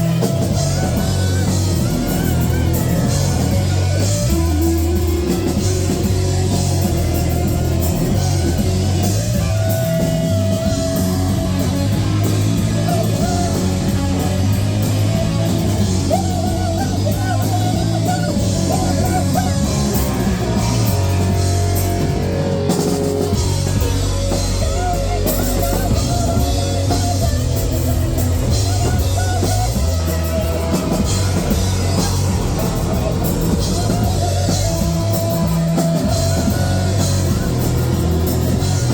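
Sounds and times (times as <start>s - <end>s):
distorted electric guitar: 0.0s - 38.9s
drum kit: 0.0s - 38.9s
person singing or shouting: 0.0s - 38.9s.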